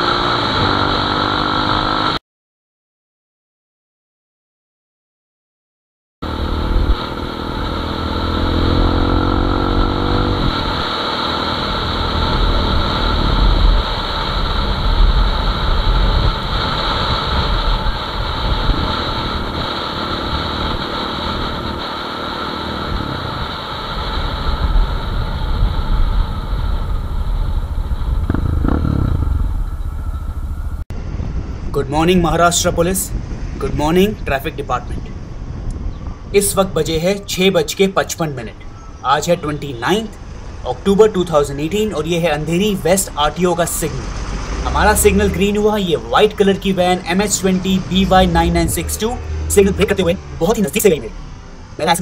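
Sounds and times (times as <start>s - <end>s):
motorcycle engine revving: 0.0s - 2.2s, 6.2s - 31.7s, 41.6s - 52.0s
riding noise: 6.2s - 52.0s.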